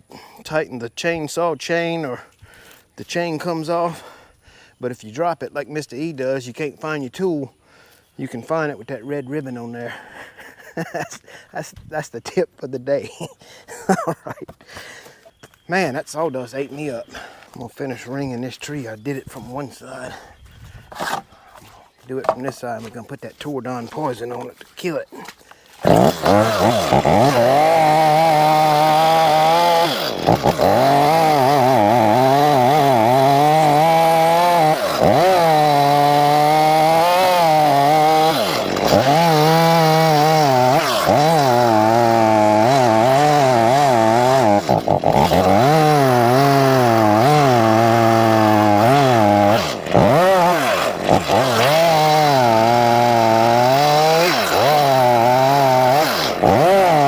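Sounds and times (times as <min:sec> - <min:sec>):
chainsaw cutting tree trunk: 0:20.9 - 0:21.3, 0:25.7 - 0:57.0.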